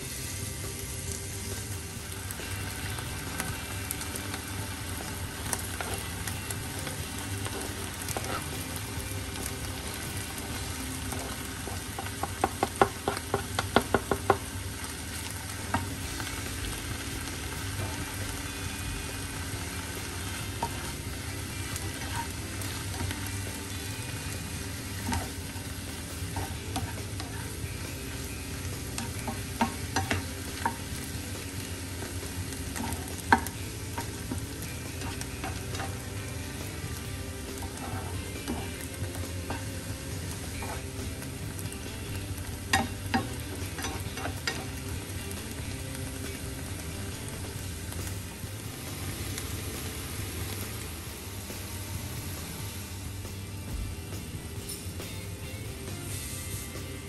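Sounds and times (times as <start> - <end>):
food sizzling in frying pan: 0.0 - 57.0
spatula clacking against pan: 11.1 - 14.5, 28.8 - 31.1, 32.6 - 36.8.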